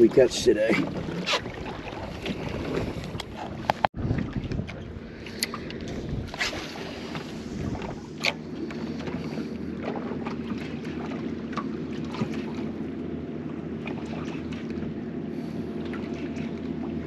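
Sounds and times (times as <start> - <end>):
water lapping against boat hull: 0.0 - 17.0
wind on microphone: 0.8 - 8.2.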